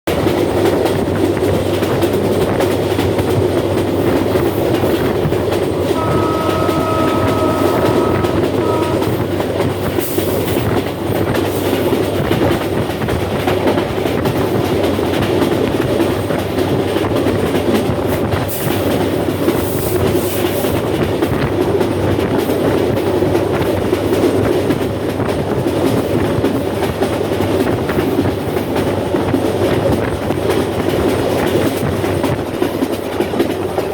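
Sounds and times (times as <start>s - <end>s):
train wheels on rails: 0.1s - 33.9s
train horn: 5.8s - 9.7s.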